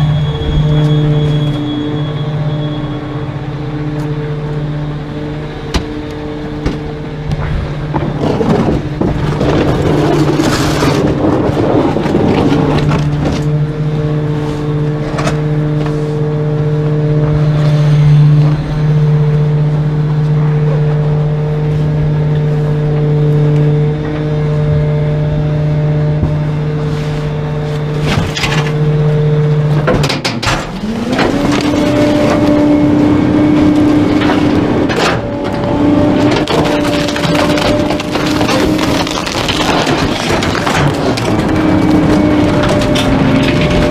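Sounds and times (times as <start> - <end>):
truck engine droning: 0.0 - 43.9
rattles and knocks: 6.6 - 13.6, 29.7 - 43.9.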